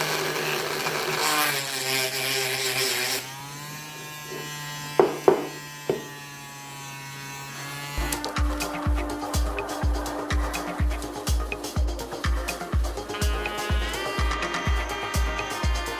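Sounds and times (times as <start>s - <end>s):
small drill motor whining: 0.0s - 8.4s
background music with beat: 8.0s - 15.9s.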